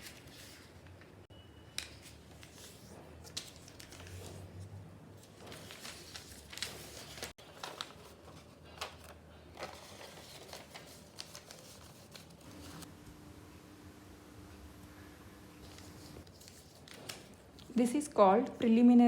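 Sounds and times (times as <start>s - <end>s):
paper being folded and creased: 0.0s - 1.0s, 1.8s - 12.9s, 15.6s - 17.7s.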